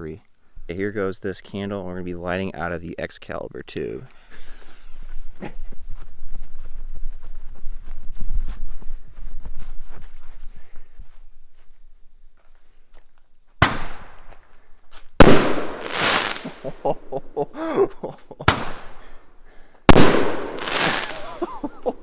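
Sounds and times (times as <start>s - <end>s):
firework sputtering and crackle: 4.1s - 6.0s, 15.2s - 17.1s, 19.9s - 21.9s
roman candle bangs: 13.6s - 14.2s, 15.2s - 16.7s, 18.5s - 19.0s, 19.9s - 21.7s.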